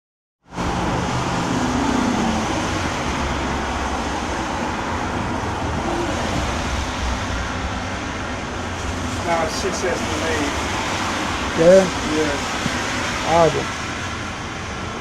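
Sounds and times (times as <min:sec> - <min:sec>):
vehicles passing on wet road: 0:00.5 - 0:15.0.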